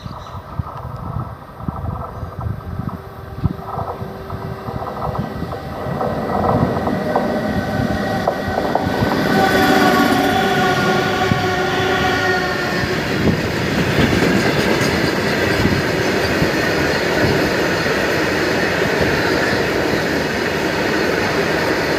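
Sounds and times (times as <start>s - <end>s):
train rumbling past: 0.0s - 21.9s
wheels clattering over rail joints: 0.7s - 10.2s
train horn: 8.9s - 13.3s.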